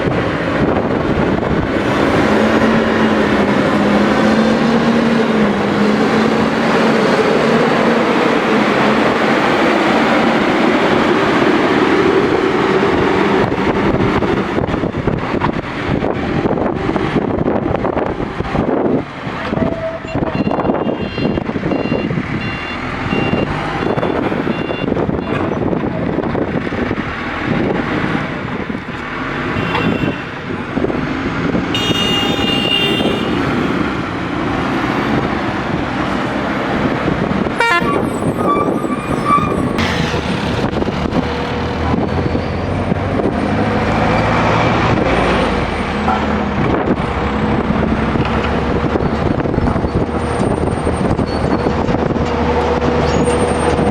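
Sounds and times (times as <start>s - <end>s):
diesel engine running: 0.0s - 53.9s
short high-pitched horn tone: 31.8s - 33.4s, 37.6s - 39.8s.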